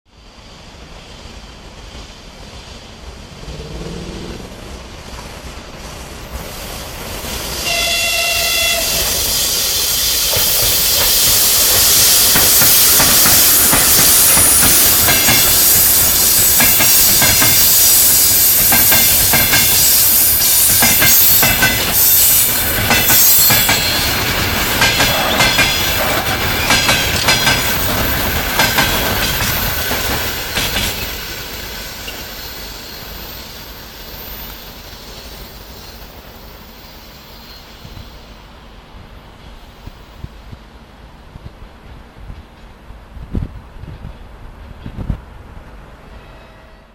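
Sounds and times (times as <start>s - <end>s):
train passing at speed: 0.1s - 46.9s
train horn: 7.6s - 9.2s, 46.0s - 46.9s
wheels clicking over rail joints: 22.6s - 32.3s.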